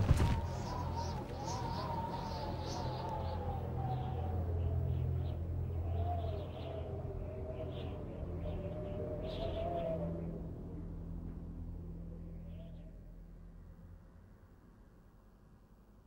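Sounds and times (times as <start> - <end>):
birds chirping: 0.0 - 9.7.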